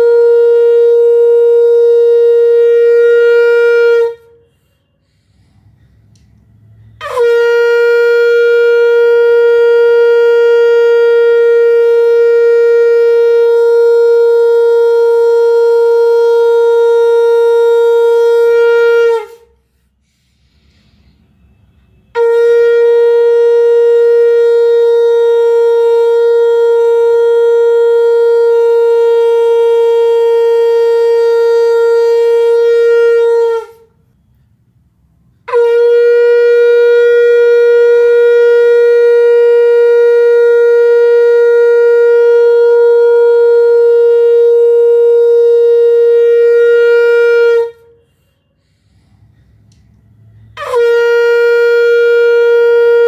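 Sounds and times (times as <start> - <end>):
conch shell blasts: 0.0 - 19.8, 21.2 - 34.0, 35.4 - 53.0.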